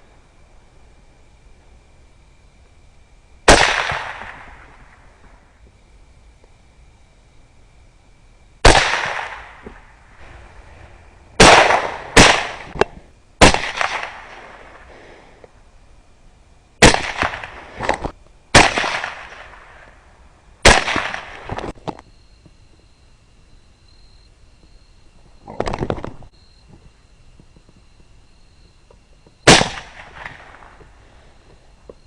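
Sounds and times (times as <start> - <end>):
echoing gunshots: 3.5 - 5.0, 8.6 - 14.9, 16.8 - 20.0, 20.6 - 21.6, 29.4 - 30.8.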